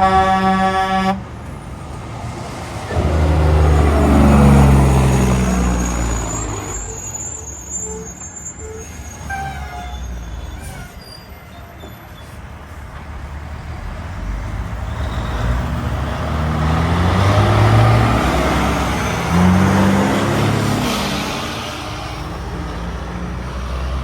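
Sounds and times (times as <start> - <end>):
truck air horn blasting: 0.0 - 1.3, 8.8 - 11.0
heavy truck passing: 0.0 - 11.0, 12.0 - 24.0.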